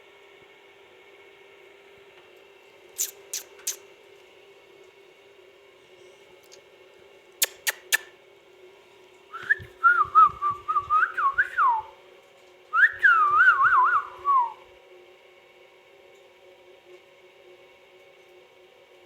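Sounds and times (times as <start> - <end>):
parakeet whistling: 3.0 - 3.8
sharp clicks: 7.4 - 8.1.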